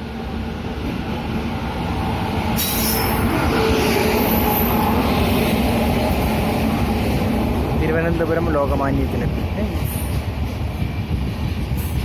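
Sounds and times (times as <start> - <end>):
train wheels rumbling on rails: 0.0 - 12.0
high brake squeal: 2.6 - 3.3.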